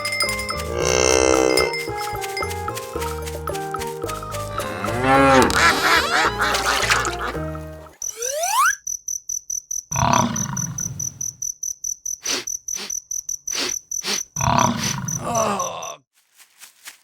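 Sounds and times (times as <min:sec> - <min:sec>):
cow mooing: 0:00.6 - 0:01.8, 0:04.5 - 0:06.7
cricket chirping: 0:07.9 - 0:16.0.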